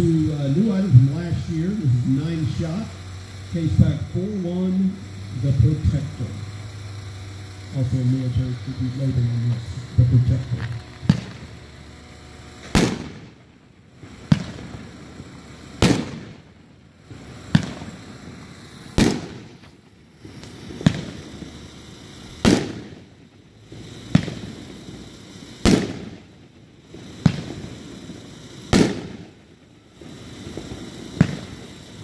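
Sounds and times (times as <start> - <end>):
firework bangs with rumbling echo: 9.8 - 11.8, 12.6 - 13.4, 14.0 - 19.6, 20.2 - 21.6, 22.4 - 23.1, 23.7 - 31.9.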